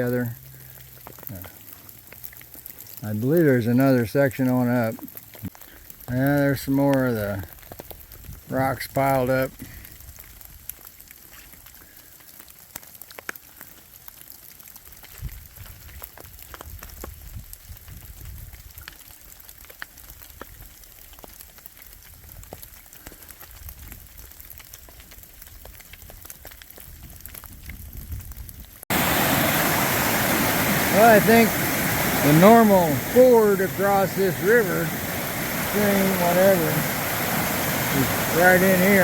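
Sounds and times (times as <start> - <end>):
mountain stream rushing: 28.9 - 39.0
water drops pattering: 28.9 - 39.0.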